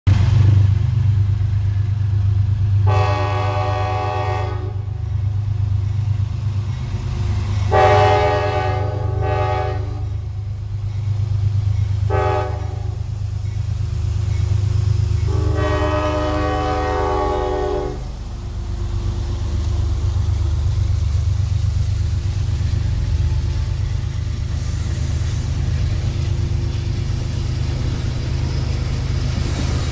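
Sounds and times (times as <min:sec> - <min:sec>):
locomotive air horn blasts: 0:02.8 - 0:04.8, 0:07.7 - 0:10.1, 0:12.1 - 0:13.0, 0:15.3 - 0:18.1
diesel engine rumble: 0:04.7 - 0:29.9.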